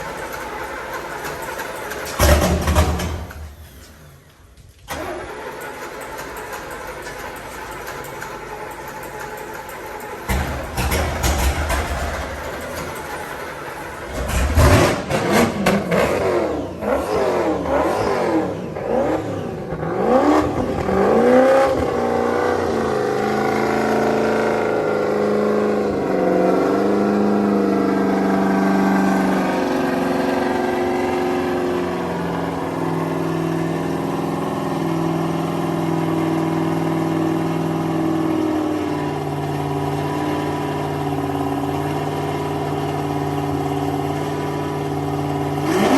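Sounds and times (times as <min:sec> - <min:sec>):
powerboat engine revving and idling: 0:09.9 - 0:45.9.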